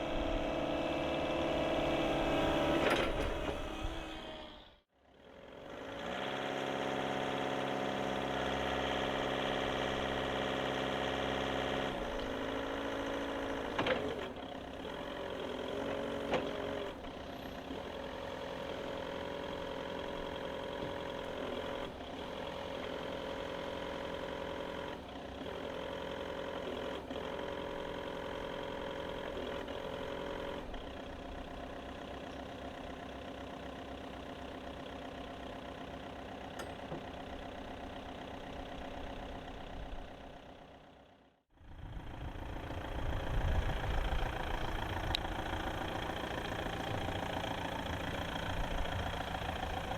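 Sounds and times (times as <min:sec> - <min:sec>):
forklift diesel engine running: 0:00.0 - 0:49.9.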